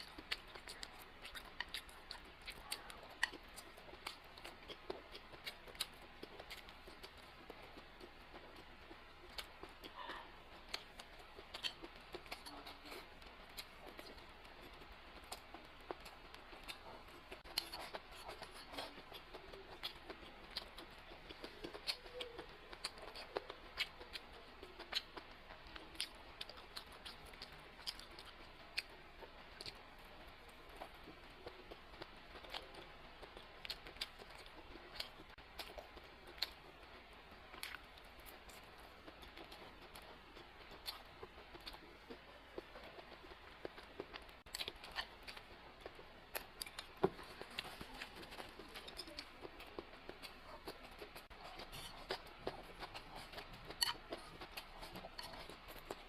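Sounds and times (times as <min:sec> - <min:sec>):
person chewing: 0:00.0 - 0:56.0.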